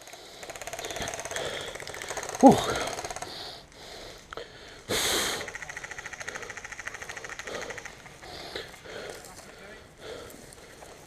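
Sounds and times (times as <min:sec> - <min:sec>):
airsoft guns firing full auto: 0:00.0 - 0:03.6, 0:04.9 - 0:09.4.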